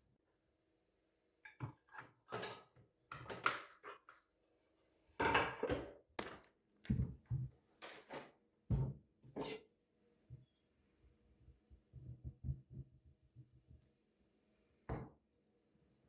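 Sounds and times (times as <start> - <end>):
objects knocking and clattering: 5.2 - 8.9.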